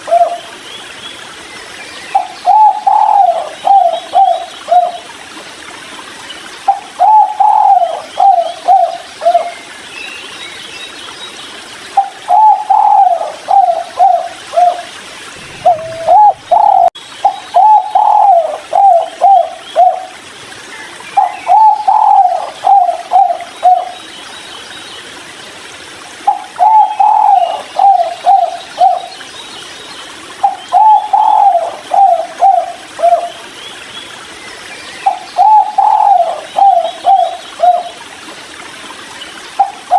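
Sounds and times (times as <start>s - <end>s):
dove cooing: 0.0s - 0.4s, 2.2s - 5.0s, 6.7s - 9.5s, 12.0s - 20.1s, 21.2s - 23.9s, 26.3s - 29.1s, 30.4s - 33.3s, 35.1s - 37.9s
birds chirping: 12.0s - 20.0s.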